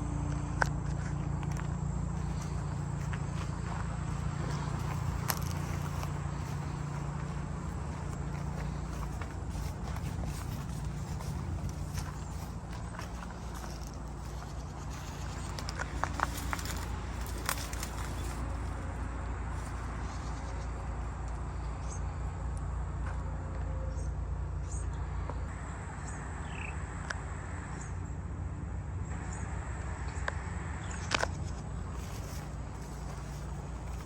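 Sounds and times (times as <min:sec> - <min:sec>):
low rumble: 0:00.8 - 0:19.7.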